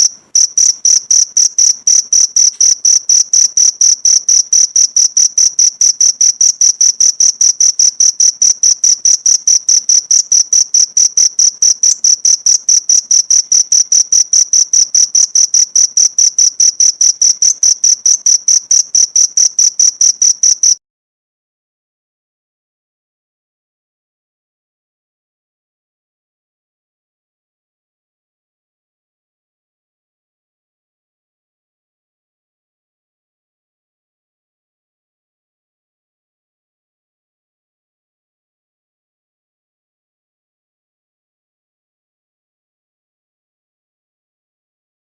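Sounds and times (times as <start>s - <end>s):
cricket chirping: 0.0s - 20.8s.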